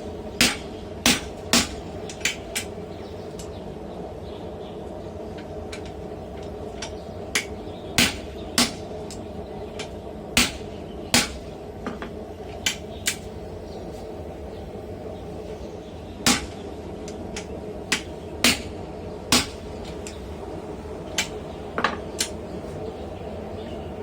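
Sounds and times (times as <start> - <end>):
steady hum: 0.0 - 24.0
hammer striking steel on anvil: 0.4 - 2.7, 7.3 - 8.8, 9.8 - 11.4, 16.2 - 16.6, 17.4 - 18.7, 19.3 - 19.6.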